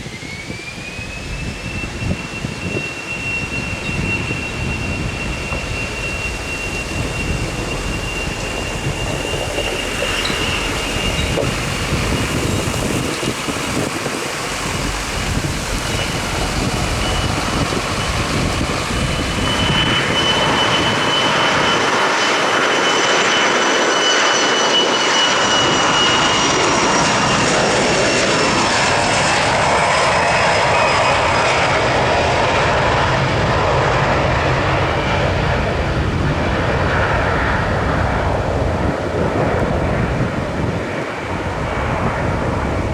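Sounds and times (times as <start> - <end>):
high falling whine: 0.0 - 28.8
aircraft engines rushing: 0.0 - 42.9.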